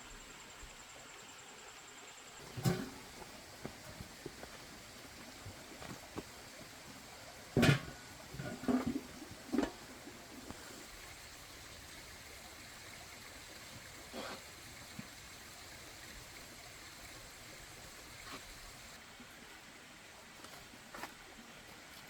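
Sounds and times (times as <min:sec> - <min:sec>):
water splashing: 0:02.4 - 0:18.9.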